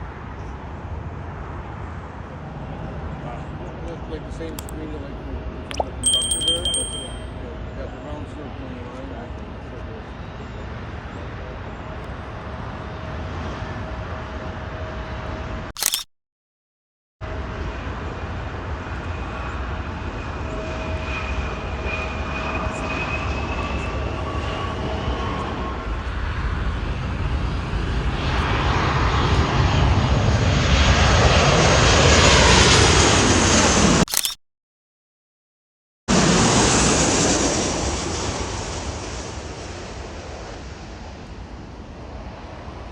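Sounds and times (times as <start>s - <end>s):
jet airliner engine noise: 17.4s - 34.2s, 36.1s - 42.9s.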